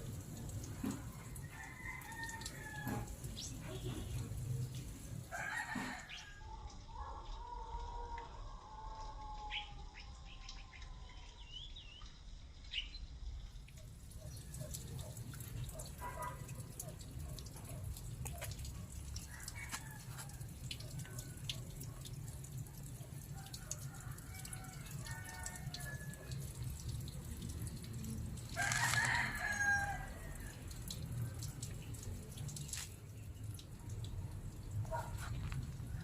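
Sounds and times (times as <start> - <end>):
rooster crowing: 1.2 - 3.1, 5.3 - 6.6, 23.4 - 26.5, 28.6 - 30.7.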